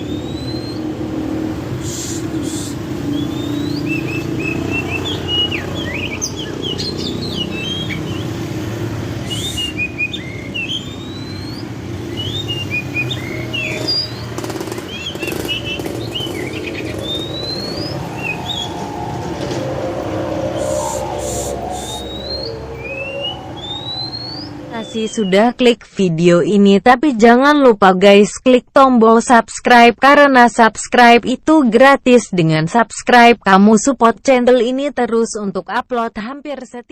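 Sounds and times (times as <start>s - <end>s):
songbird whistling and chattering: 0.0s - 0.9s, 1.8s - 8.4s, 9.2s - 25.5s.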